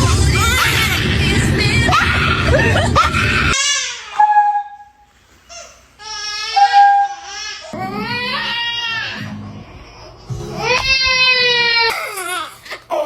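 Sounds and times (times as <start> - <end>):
background music: 7.8 - 11.8.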